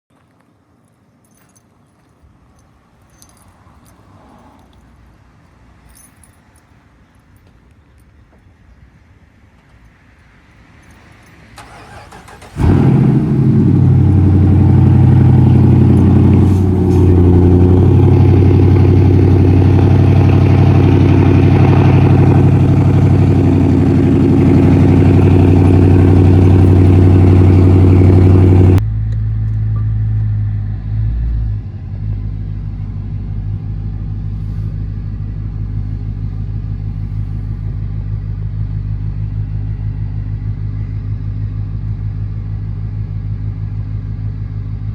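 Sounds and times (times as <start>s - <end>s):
car engine starting and idling: 11.6s - 44.9s.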